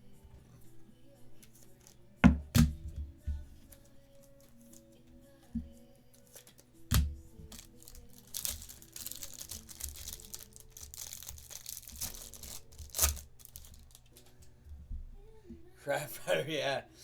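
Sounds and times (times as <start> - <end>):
faint background music: 0.0 - 17.0
knocks on a table: 2.2 - 3.1
wrapper tearing and crinkling: 6.1 - 14.2.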